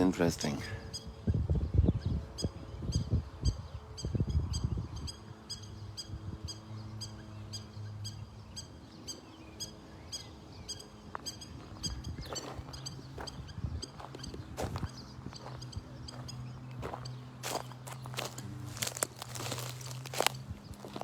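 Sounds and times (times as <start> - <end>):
low thumps of footsteps: 12.2 - 21.0.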